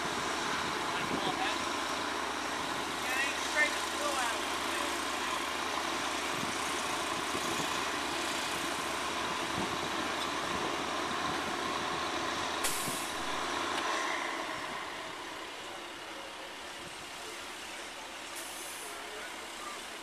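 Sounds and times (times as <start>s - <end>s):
heavy truck engine running: 0.0s - 20.0s
air brake hiss: 12.6s - 15.2s.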